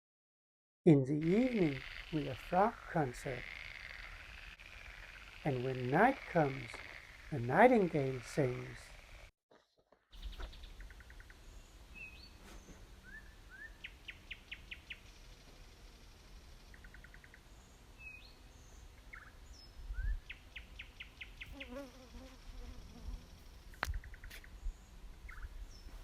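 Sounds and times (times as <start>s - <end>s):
nightingale singing: 10.1s - 15.4s, 16.4s - 21.8s, 23.8s - 26.0s.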